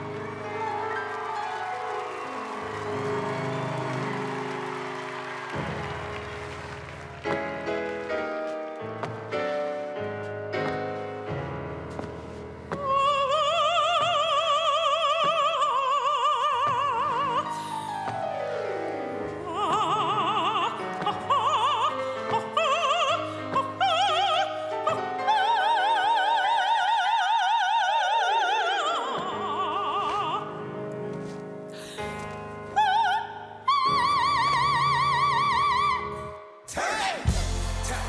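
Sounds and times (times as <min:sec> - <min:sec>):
musical accompaniment: 0:00.0 - 0:26.2, 0:28.3 - 0:38.0
operatic voice singing: 0:36.7 - 0:38.0.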